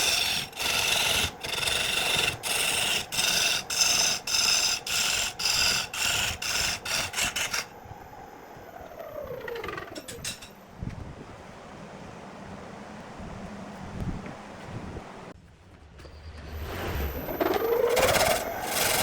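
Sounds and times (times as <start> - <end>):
hand tool scraping wood: 0.0 - 7.7
faint whine falling in pitch: 7.8 - 10.4.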